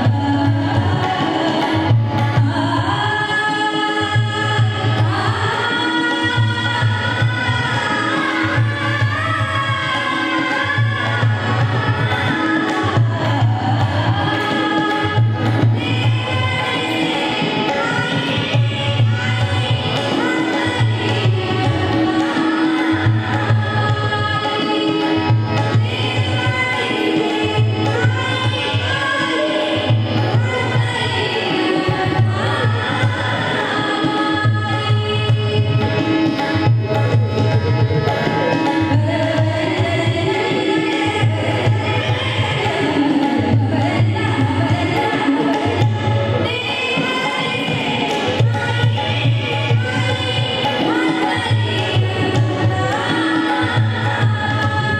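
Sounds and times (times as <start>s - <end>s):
woman singing: 0.0s - 36.6s, 38.0s - 54.9s
tabla: 0.0s - 54.9s.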